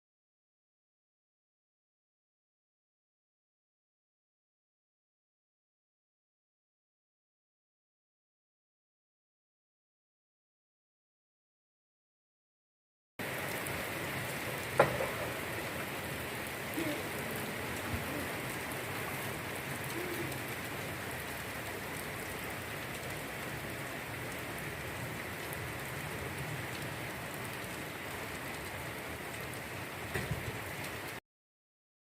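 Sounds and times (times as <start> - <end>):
steady rain: 13.2 - 31.2.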